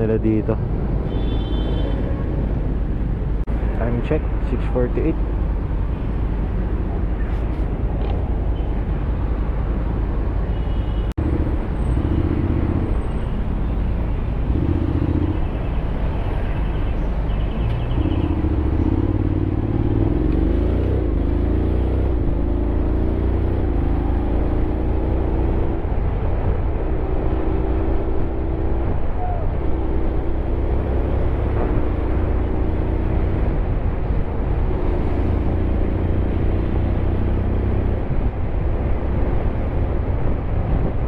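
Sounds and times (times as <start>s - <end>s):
motorcycle engine accelerating: 11.2s - 25.3s
wind rush on microphone: 25.5s - 41.0s.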